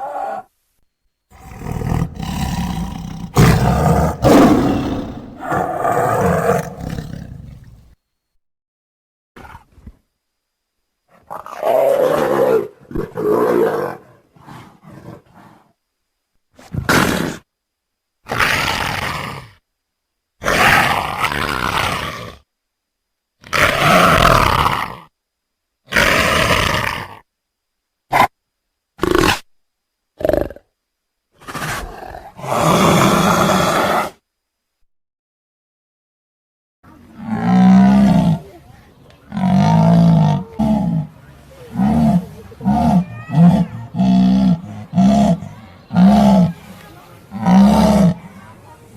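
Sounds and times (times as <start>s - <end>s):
big cat grunt: 1.4s - 7.9s, 39.3s - 46.6s, 47.3s - 48.2s
big cat roaring: 1.4s - 7.9s, 37.2s - 38.5s, 39.3s - 41.1s, 41.7s - 46.5s, 47.3s - 48.2s.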